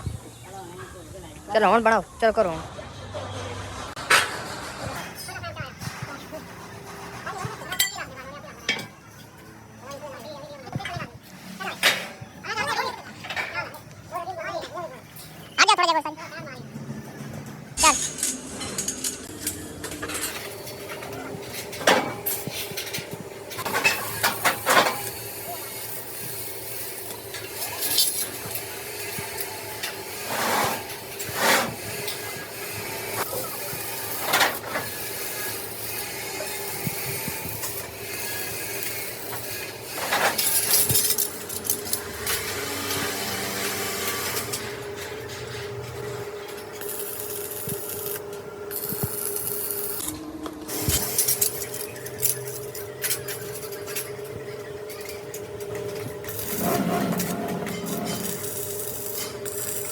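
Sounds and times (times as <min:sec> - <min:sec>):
hand tool scraping steel: 0:30.1 - 0:31.8, 0:56.2 - 0:59.9
machine hum: 0:40.0 - 0:59.9.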